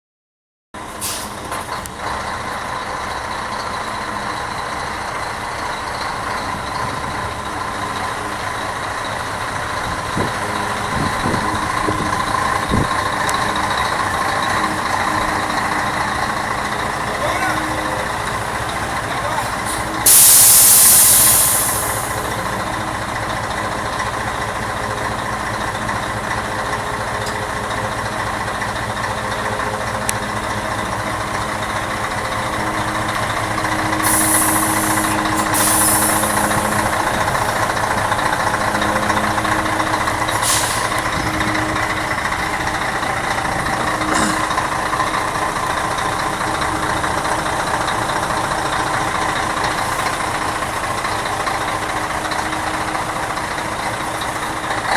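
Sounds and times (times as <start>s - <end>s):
truck diesel engine running: 0.8s - 54.9s
compressed air hissing: 19.7s - 22.4s, 34.0s - 37.6s, 40.3s - 41.0s.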